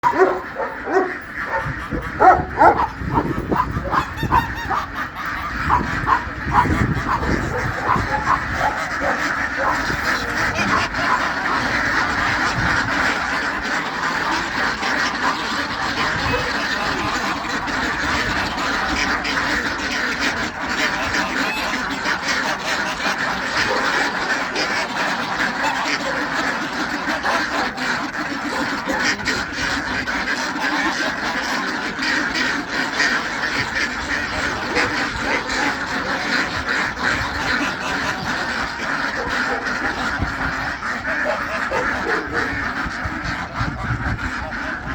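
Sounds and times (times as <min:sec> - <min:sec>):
flock of fowl calling: 0:00.0 - 0:44.9.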